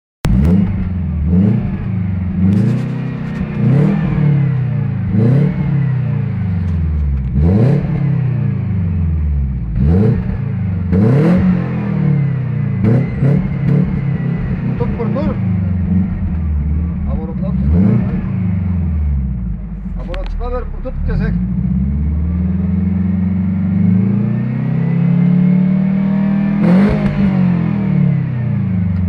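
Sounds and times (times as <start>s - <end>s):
car engine revving: 0.2s - 29.0s
person speaking: 19.8s - 21.4s.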